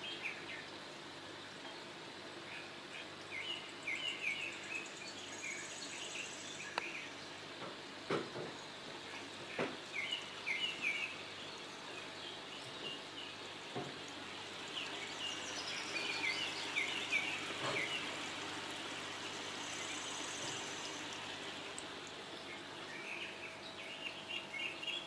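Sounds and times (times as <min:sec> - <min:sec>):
fountain water trickling and bubbling: 0:00.0 - 0:25.0
songbirds chirping and singing: 0:02.4 - 0:07.4, 0:14.3 - 0:18.5, 0:22.3 - 0:25.0.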